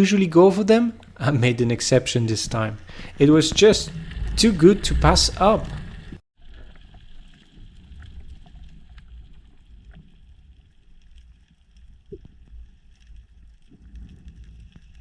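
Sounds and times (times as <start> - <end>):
faint clicks and ticks: 0.9 - 6.2
low underwater rumble: 0.9 - 15.0.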